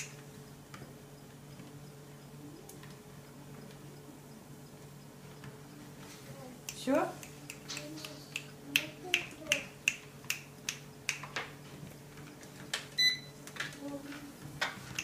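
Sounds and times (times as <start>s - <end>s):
sharp clicks: 0.0s - 1.8s
treadmill motor hum: 0.0s - 7.6s.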